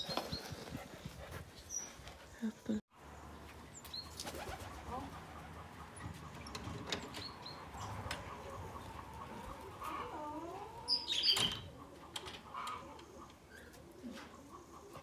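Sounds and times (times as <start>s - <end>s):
birds chirping: 4.8s - 10.0s, 10.8s - 13.7s.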